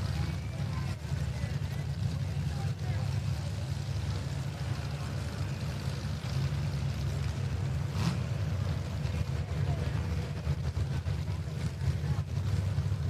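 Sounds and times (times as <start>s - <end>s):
car engines running at low speed: 0.0s - 13.0s.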